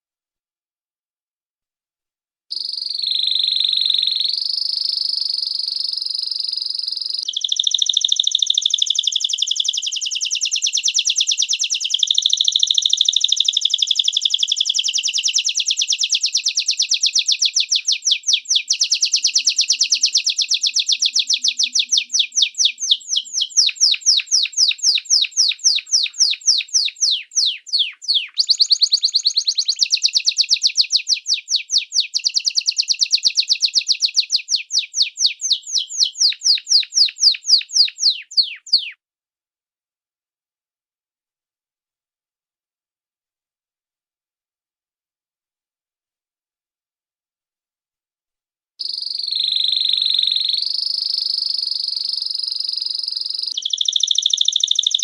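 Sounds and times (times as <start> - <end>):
small bird singing: 2.5 - 39.0, 48.8 - 55.0.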